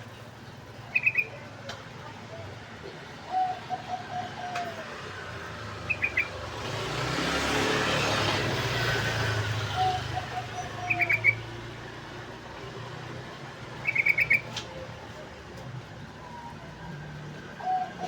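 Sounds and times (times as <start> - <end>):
bird chattering: 0.8 - 1.4, 5.9 - 6.4, 9.8 - 11.5, 13.8 - 14.5
passing vehicle: 1.6 - 18.0.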